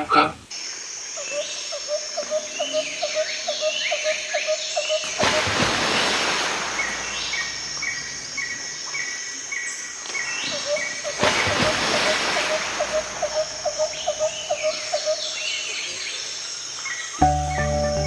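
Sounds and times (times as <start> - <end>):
insects: 0.0 - 18.0
birds calling: 2.2 - 16.0.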